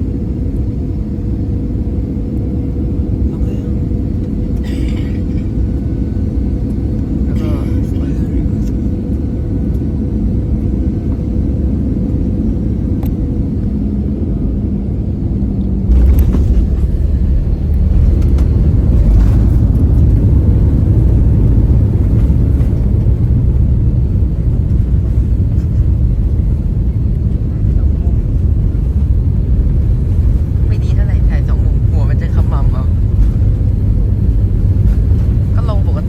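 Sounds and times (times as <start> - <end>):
airplane engine drone: 0.0 - 36.0
landing wheels rumble: 15.8 - 25.8.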